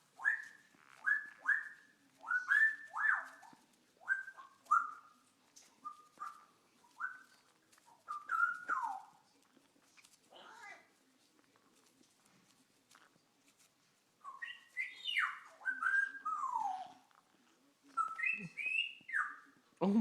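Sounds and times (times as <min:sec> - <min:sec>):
bird whistling calls: 0:14.2 - 0:16.9.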